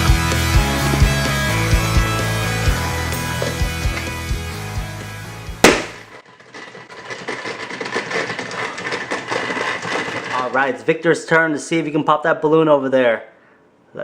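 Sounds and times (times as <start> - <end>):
rock music: 0.0 - 6.0
balloon pop: 5.6 - 6.1.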